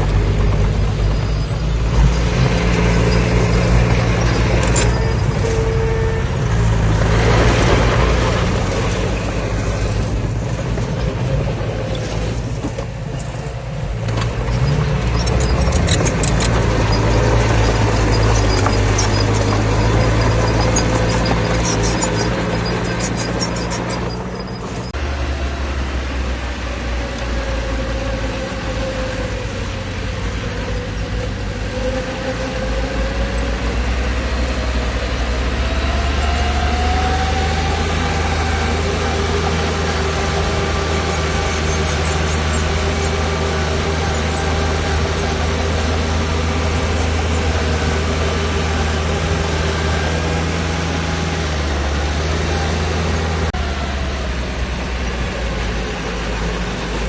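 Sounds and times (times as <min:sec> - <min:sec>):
heavy diesel engine droning: 0:00.0 - 0:57.0
whining tone rising in pitch: 0:14.4 - 0:57.0.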